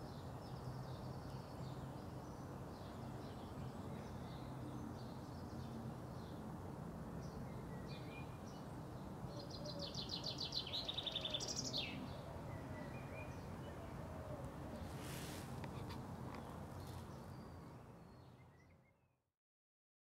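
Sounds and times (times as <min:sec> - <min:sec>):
songbird trilling: 0:09.8 - 0:12.0.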